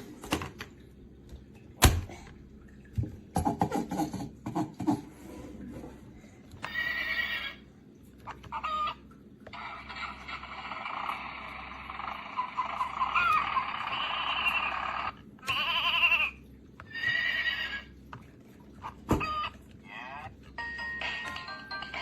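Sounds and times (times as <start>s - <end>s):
electronic farm animal sounds: 6.6s - 7.7s, 8.3s - 18.0s.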